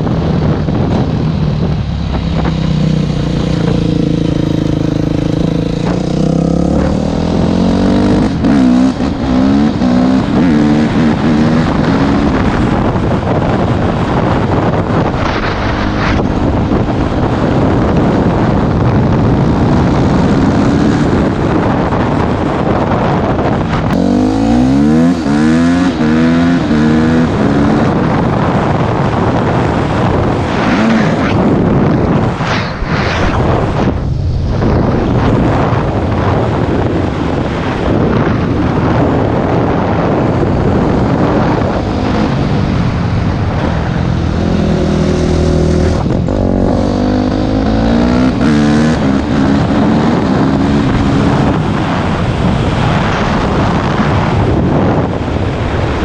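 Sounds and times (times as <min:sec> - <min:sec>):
wind noise on microphone: 0:00.0 - 0:56.0
dirt bike engine accelerating: 0:00.4 - 0:37.4, 0:38.0 - 0:56.0.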